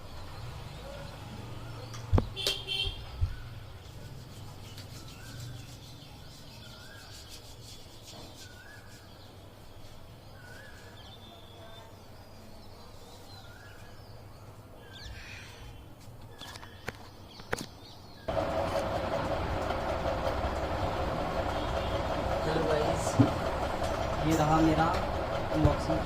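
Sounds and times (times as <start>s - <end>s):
steady low hum: 18.3s - 26.0s.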